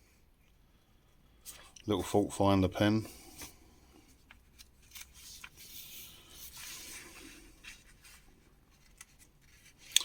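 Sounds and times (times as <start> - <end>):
magazine page turning: 4.2 - 10.0.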